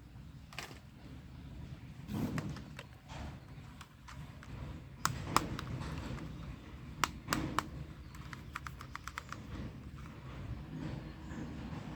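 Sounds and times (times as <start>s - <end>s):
airsoft pistol clicking: 3.8s - 6.4s, 7.0s - 9.4s.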